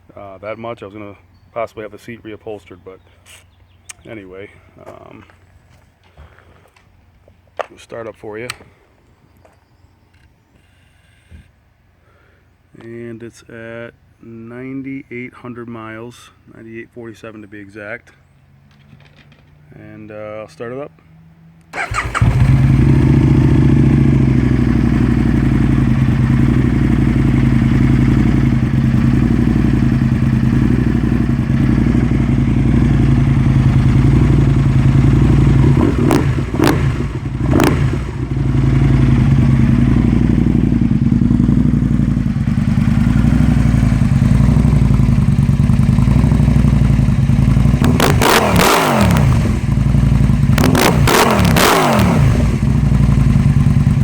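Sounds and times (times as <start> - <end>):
motorcycle engine idling and revving: 21.7 - 54.0.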